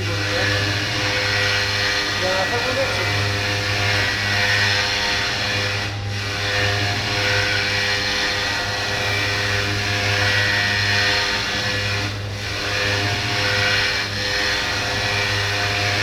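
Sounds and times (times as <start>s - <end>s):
milling machine humming and whining: 0.0s - 16.0s.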